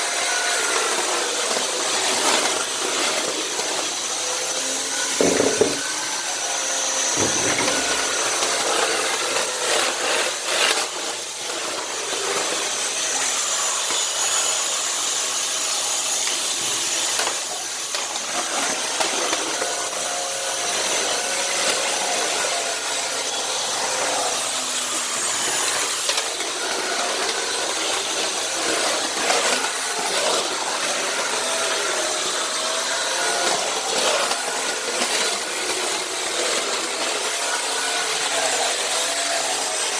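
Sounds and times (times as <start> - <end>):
vacuum cleaner whining: 0.0 - 39.9
floor head scraping tile: 4.9 - 6.4, 7.0 - 9.8.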